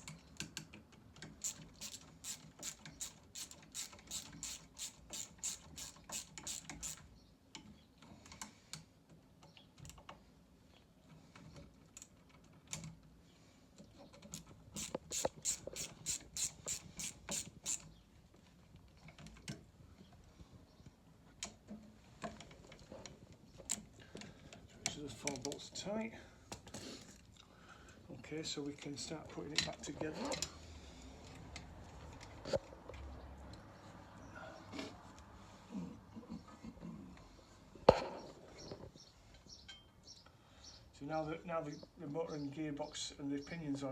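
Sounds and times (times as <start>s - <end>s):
ratchet spanner clicking: 1.4s - 7.1s, 14.8s - 17.9s.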